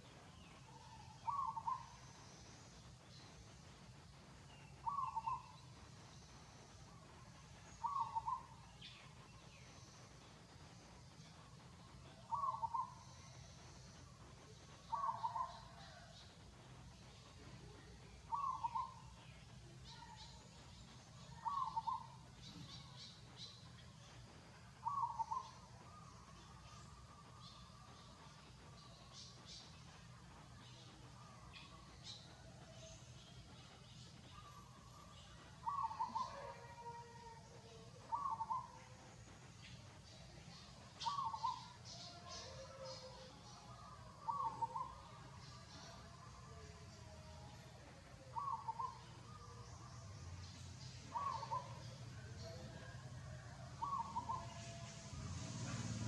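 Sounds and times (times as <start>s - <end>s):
faint high chirping: 0.0s - 56.0s
bird hooting call: 0.7s - 2.0s, 4.8s - 5.6s, 7.8s - 8.6s, 12.3s - 13.0s, 14.9s - 16.1s, 18.3s - 19.0s, 21.4s - 22.2s, 24.8s - 26.0s, 35.6s - 38.8s, 41.0s - 45.1s, 48.2s - 49.4s, 51.1s - 52.0s, 53.8s - 54.8s.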